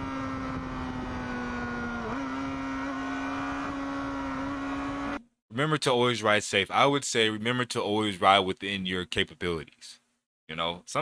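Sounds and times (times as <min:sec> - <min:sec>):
motorcycle engine at high revs: 0:00.0 - 0:05.2
wind and road rush: 0:00.0 - 0:05.2.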